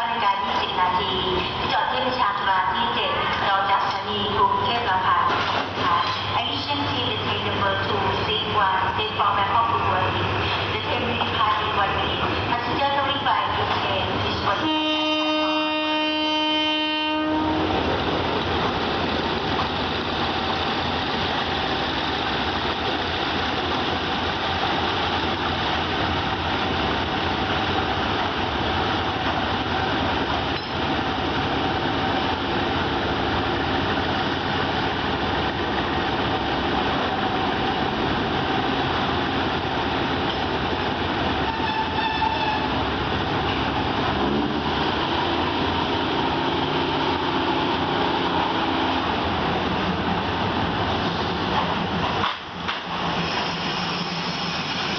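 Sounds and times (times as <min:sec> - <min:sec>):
train running on track: 0:00.0 - 0:54.9
train horn blast: 0:14.5 - 0:17.7, 0:41.4 - 0:42.7.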